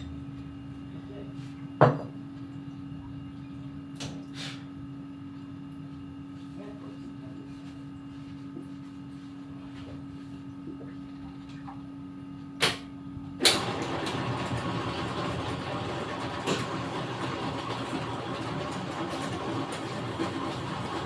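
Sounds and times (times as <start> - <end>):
steady machine hum: 4.7 - 21.0
motor starting and running: 13.4 - 21.0.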